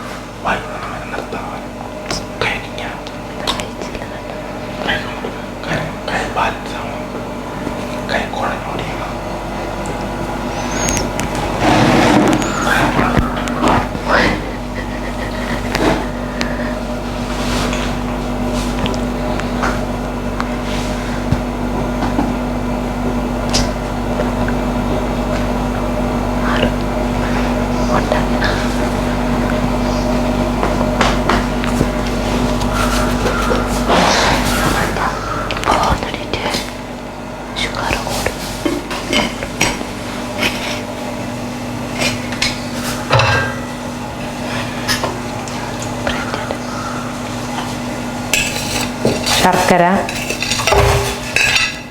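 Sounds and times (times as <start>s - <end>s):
steady mechanical hum: 0.0s - 51.9s
utensils knocking against pot: 42.1s - 43.7s, 48.3s - 51.9s.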